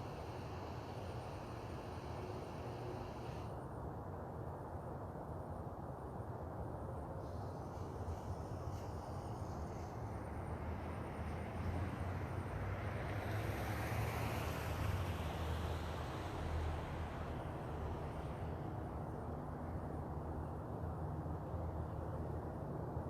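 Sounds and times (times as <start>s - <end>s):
vehicle passing with rushing noise: 7.2s - 21.4s.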